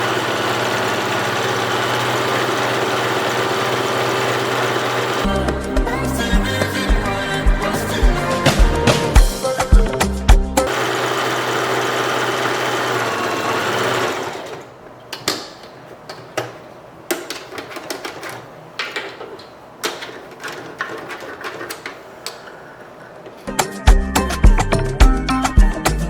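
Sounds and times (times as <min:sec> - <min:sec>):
sewing machine stitching: 0:00.0 - 0:05.3, 0:10.7 - 0:14.7.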